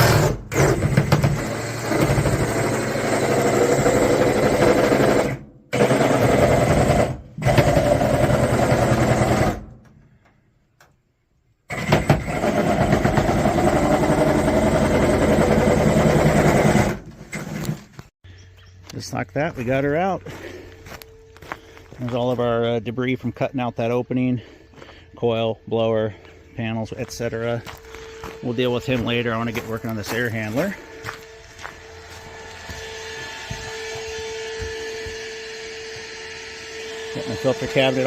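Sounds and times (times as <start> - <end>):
power saw cutting sheet metal: 0.0 - 9.8, 11.7 - 17.8, 30.0 - 38.0.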